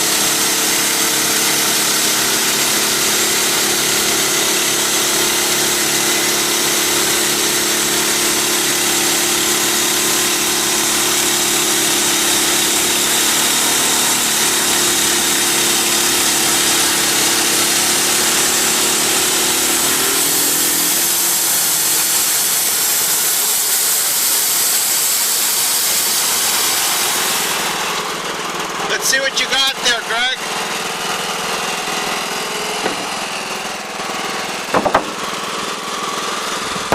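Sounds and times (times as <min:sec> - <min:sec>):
sawmill engine droning: 0:00.0 - 0:36.9
band blade cutting log: 0:32.6 - 0:33.4, 0:34.5 - 0:35.5.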